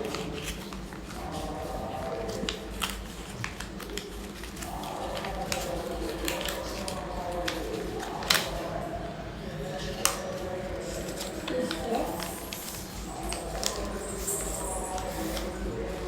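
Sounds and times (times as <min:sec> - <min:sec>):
paper being folded and creased: 0:00.0 - 0:08.8, 0:09.9 - 0:16.0.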